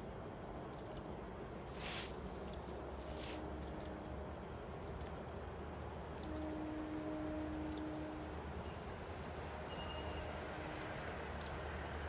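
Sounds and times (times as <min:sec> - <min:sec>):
faint low outdoor rumble: 0:00.0 - 0:12.0.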